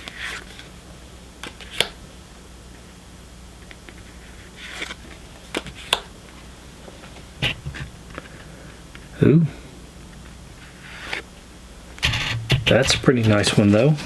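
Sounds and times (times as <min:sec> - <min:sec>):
card rustle: 0:03.8 - 0:06.0, 0:12.1 - 0:14.0.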